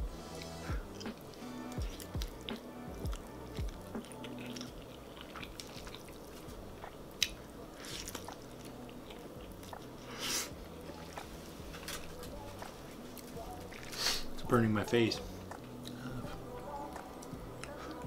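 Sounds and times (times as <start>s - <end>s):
background music: 0.0s - 18.0s
person chewing: 0.2s - 14.4s, 15.4s - 18.0s.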